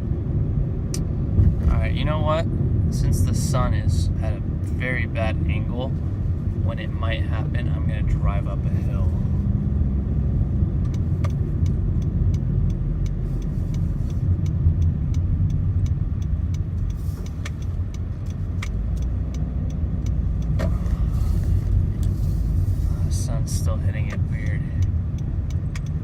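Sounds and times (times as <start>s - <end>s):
car cabin road and engine rumble: 0.0s - 26.0s
faint ticks: 10.8s - 26.0s.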